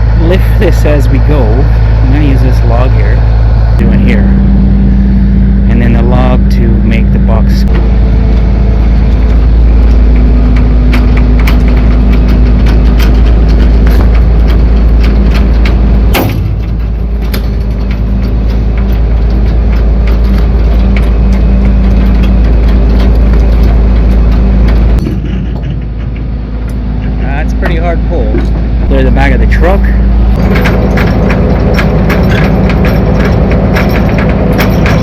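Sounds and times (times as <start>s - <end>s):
truck diesel engine running: 0.0s - 35.0s
clicks and knocks: 7.7s - 28.6s, 30.3s - 35.0s.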